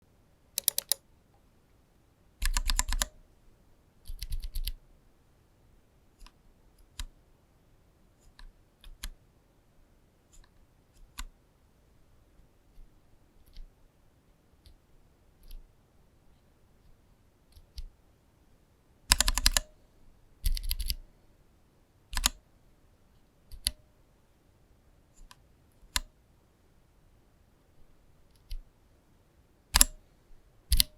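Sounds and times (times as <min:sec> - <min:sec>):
mechanical keyboard keystrokes: 0:00.6 - 0:01.0, 0:02.4 - 0:03.1, 0:04.0 - 0:04.7, 0:19.1 - 0:19.7, 0:20.4 - 0:21.0, 0:22.1 - 0:22.4, 0:29.8 - 0:30.0.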